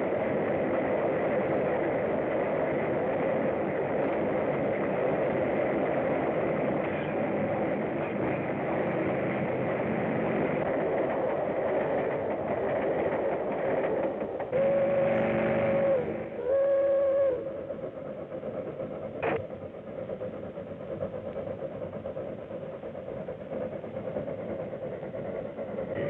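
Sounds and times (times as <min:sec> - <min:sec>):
train rumbling: 0:00.0 - 0:26.0
train whistle blasts: 0:14.6 - 0:17.5.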